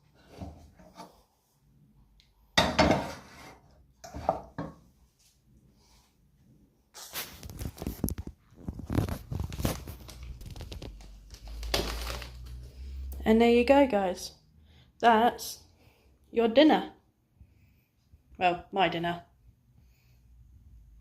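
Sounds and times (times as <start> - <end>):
kitchenware knocking: 2.6 - 3.2
kitchenware scraping and rustling: 2.6 - 4.8.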